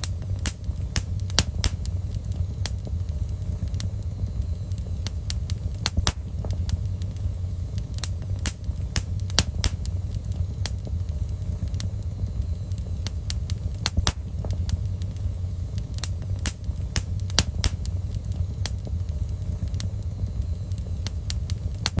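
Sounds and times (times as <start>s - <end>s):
fire pops and snaps: 0.0s - 22.0s
low fire rumble: 0.0s - 22.0s.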